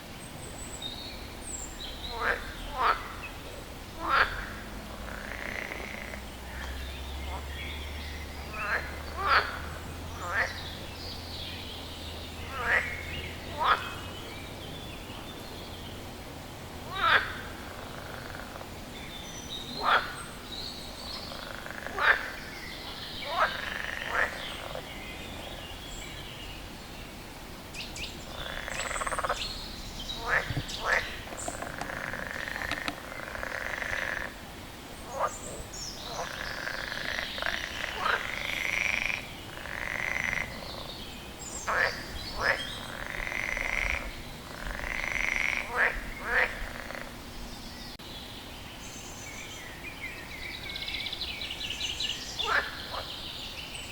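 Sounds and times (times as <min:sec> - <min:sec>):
frog croaking: 0:02.0 - 0:10.8, 0:12.4 - 0:14.1, 0:16.8 - 0:18.7, 0:19.8 - 0:20.4, 0:21.1 - 0:22.6, 0:23.2 - 0:24.9, 0:28.3 - 0:29.5, 0:30.1 - 0:34.4, 0:35.1 - 0:41.0, 0:41.6 - 0:47.2, 0:52.4 - 0:53.1
higher buzzing frog calls: 0:02.0 - 0:10.8, 0:12.4 - 0:14.1, 0:16.8 - 0:18.7, 0:19.8 - 0:20.4, 0:21.1 - 0:24.9, 0:27.7 - 0:34.4, 0:35.1 - 0:47.2.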